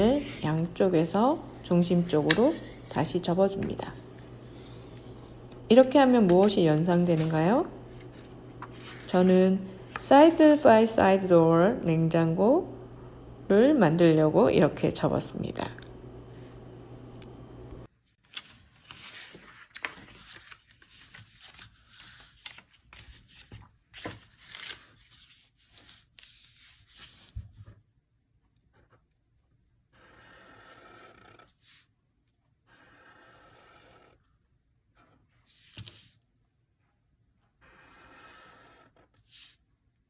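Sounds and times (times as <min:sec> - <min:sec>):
pencil scratching on paper: 0:00.0 - 0:03.2, 0:29.9 - 0:31.8, 0:32.6 - 0:34.2, 0:37.6 - 0:39.6
steady strokes across paper: 0:00.0 - 0:03.3, 0:03.9 - 0:10.8.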